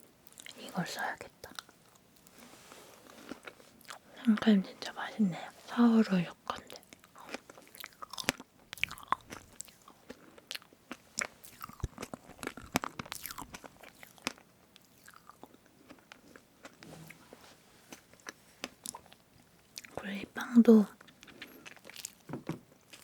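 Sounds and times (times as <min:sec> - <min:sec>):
wet chewing with mouth clicks: 0:00.3 - 0:00.6, 0:06.5 - 0:17.2, 0:17.9 - 0:20.0, 0:21.0 - 0:23.0.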